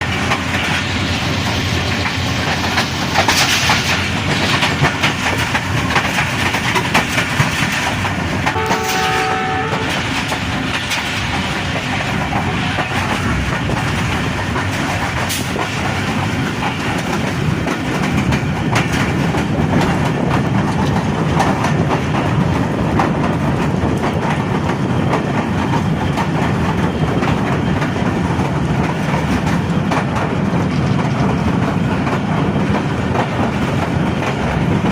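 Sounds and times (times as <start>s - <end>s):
train rumbling on rails: 0.0s - 34.9s
train horn blast: 8.5s - 10.0s.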